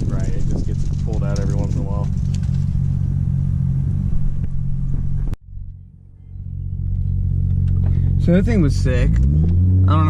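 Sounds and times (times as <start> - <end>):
vehicle engine idling: 0.0 - 9.1.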